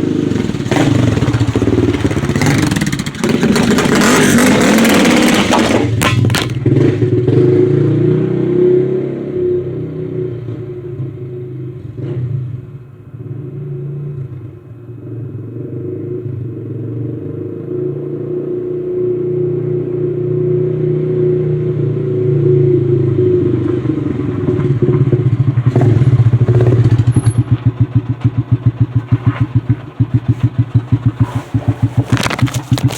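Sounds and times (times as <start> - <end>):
motorcycle engine idling: 0.0 - 6.8, 25.2 - 32.9.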